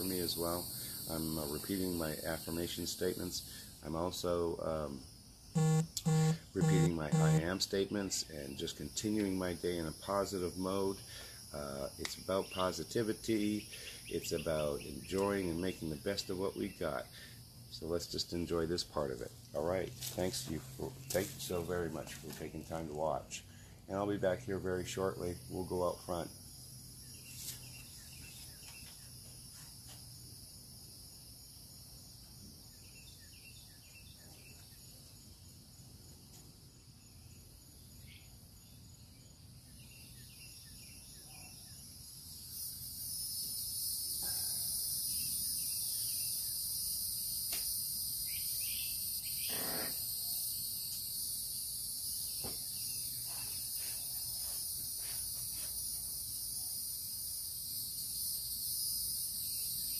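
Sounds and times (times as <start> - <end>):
insects chorus: 0.0 - 59.9.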